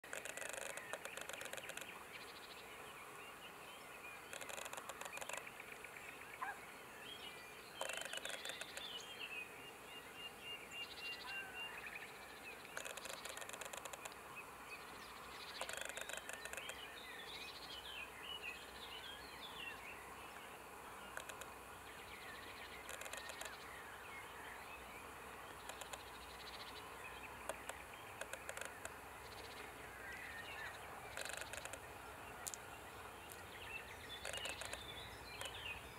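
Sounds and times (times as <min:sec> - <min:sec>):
rapid dry clicking: 0:00.0 - 0:02.0, 0:04.3 - 0:05.5, 0:07.8 - 0:08.9, 0:12.7 - 0:14.2, 0:15.5 - 0:16.8, 0:21.1 - 0:21.6, 0:22.8 - 0:23.6, 0:25.6 - 0:26.2, 0:27.4 - 0:29.0, 0:31.1 - 0:32.6, 0:34.2 - 0:35.6
small birds chirping and twittering: 0:00.0 - 0:35.9.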